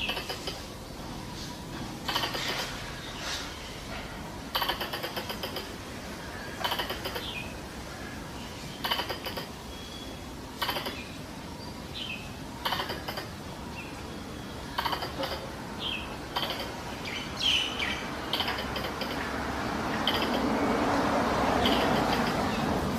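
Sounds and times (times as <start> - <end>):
squirrel call chattering: 0.0 - 0.7, 2.1 - 2.7, 4.5 - 5.8, 6.5 - 7.6, 8.8 - 9.6, 10.6 - 11.2, 12.6 - 13.4, 14.7 - 19.3, 19.9 - 20.6, 21.5 - 22.8.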